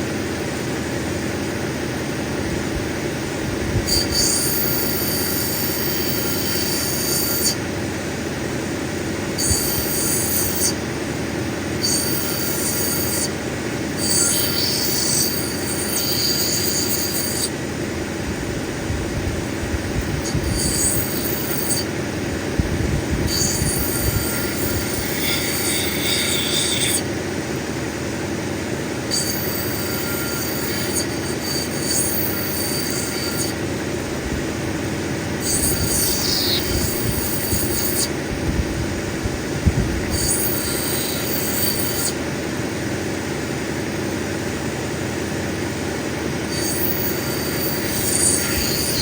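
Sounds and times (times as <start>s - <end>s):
grinding wheel running: 0.0s - 49.0s
high scraping squeal: 3.9s - 7.6s, 9.4s - 10.8s, 11.8s - 13.4s, 14.0s - 17.6s, 20.2s - 21.9s, 23.3s - 27.1s, 29.1s - 33.7s, 35.4s - 38.2s, 40.0s - 42.2s, 46.5s - 49.0s.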